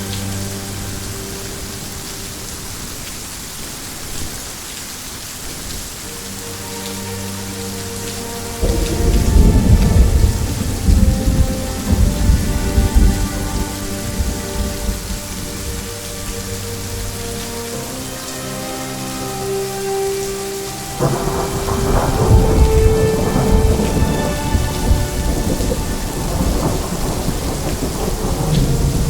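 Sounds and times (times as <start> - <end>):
steady rain falling: 0.0 - 29.0
thunder rumbling: 8.6 - 17.4, 20.8 - 29.0.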